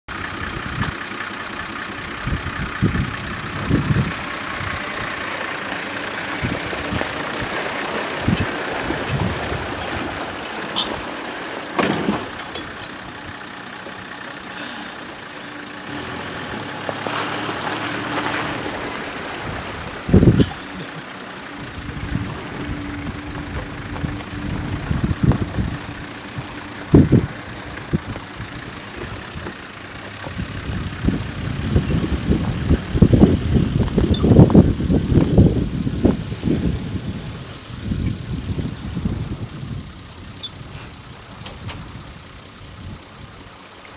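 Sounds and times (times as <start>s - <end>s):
engine idling: 0.1s - 43.9s
wind buffeting microphone: 2.2s - 5.2s, 6.2s - 11.2s, 17.6s - 20.8s, 21.5s - 43.4s
sharp clunks and knocks: 11.7s - 13.0s.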